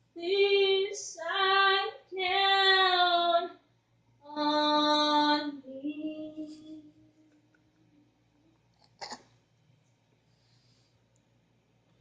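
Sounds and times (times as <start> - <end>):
high singing voice: 0.2 - 3.6, 4.3 - 7.4.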